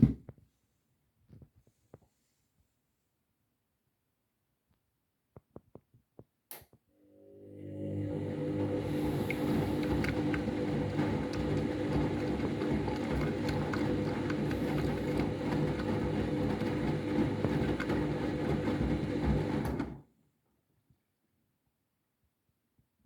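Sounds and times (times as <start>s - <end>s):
washing machine motor hum: 7.1s - 20.0s
drum churning: 8.6s - 19.6s.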